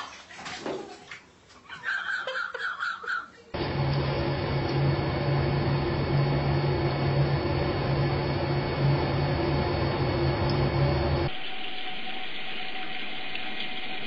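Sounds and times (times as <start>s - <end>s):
mechanical whir with hum: 3.6s - 11.3s.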